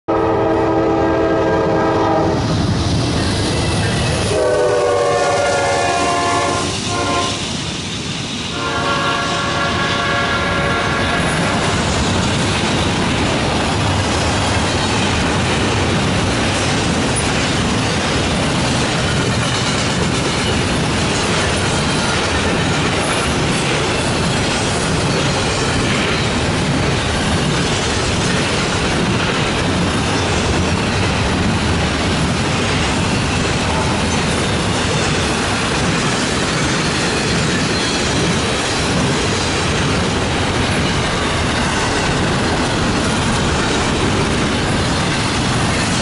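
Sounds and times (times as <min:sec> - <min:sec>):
locomotive air horn blasts: 0:00.1 - 0:02.4, 0:04.3 - 0:07.5, 0:08.5 - 0:11.4
freight train rolling past: 0:00.1 - 0:46.0.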